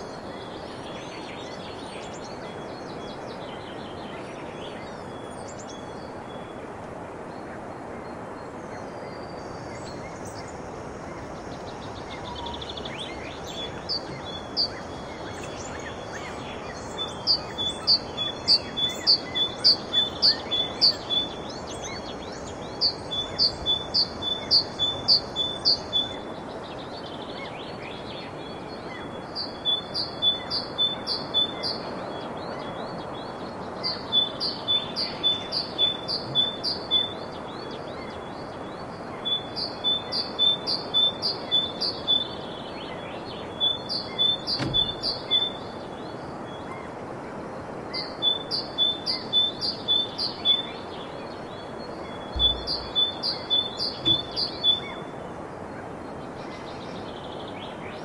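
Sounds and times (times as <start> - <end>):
background hiss: 0.0 - 58.0
bird singing high notes: 52.3 - 55.0.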